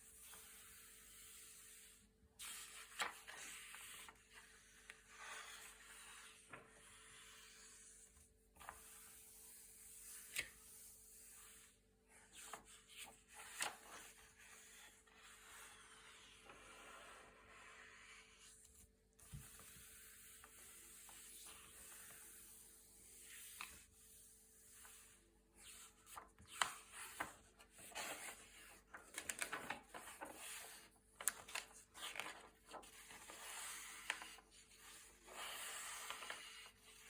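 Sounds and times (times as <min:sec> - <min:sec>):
paper pages turning: 0:02.4 - 0:07.7, 0:12.3 - 0:16.7, 0:24.8 - 0:37.0.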